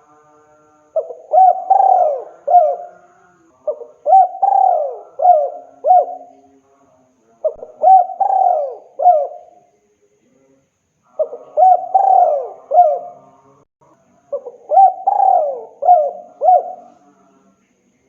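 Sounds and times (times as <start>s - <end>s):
dove cooing: 1.0s - 6.4s, 7.4s - 9.6s, 11.2s - 13.3s, 14.3s - 17.0s.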